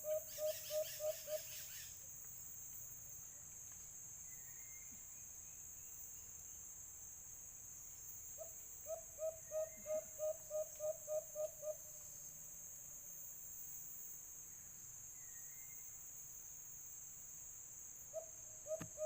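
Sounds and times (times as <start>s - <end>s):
dove hooting: 0.0s - 1.5s, 8.8s - 11.8s
high insect drone: 0.0s - 19.0s.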